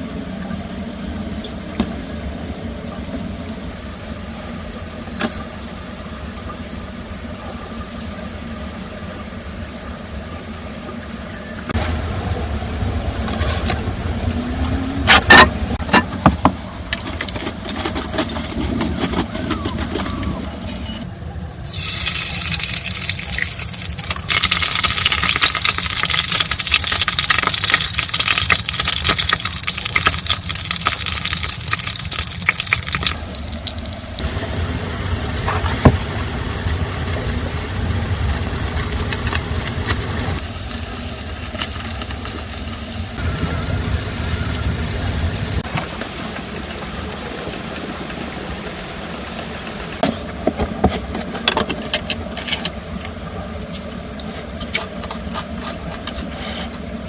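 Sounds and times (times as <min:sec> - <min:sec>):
heavy rain pouring: 0:05.6 - 0:16.9, 0:21.6 - 0:50.8.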